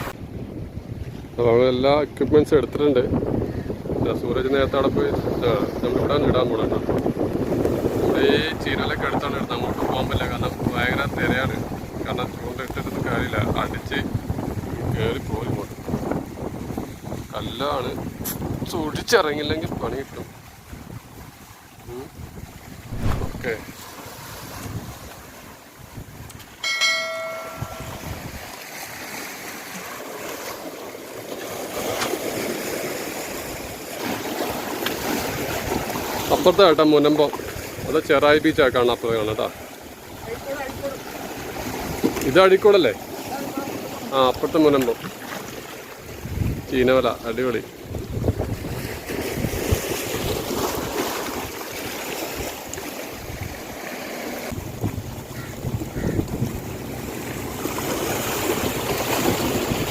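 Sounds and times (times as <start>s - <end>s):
wind buffeting microphone: 0.0s - 28.6s, 46.0s - 52.5s, 54.5s - 59.9s
sea surf breaking: 21.9s - 25.5s, 26.6s - 30.7s, 31.6s - 59.9s.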